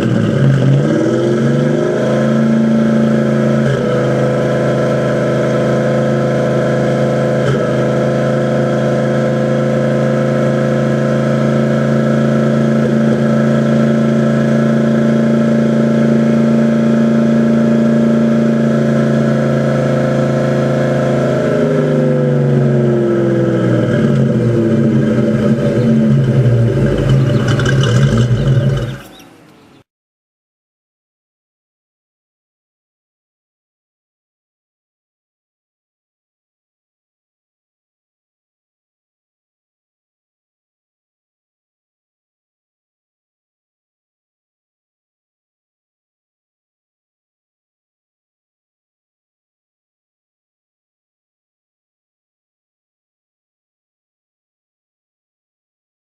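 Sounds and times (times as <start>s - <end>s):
car engine misfiring: 0.0s - 8.7s, 23.2s - 29.9s.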